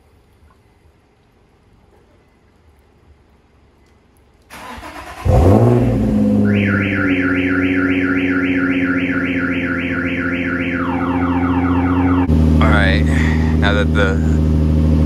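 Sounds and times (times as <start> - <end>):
car engine starting and idling: 4.5 - 15.0
car alarm chirping: 6.3 - 12.3.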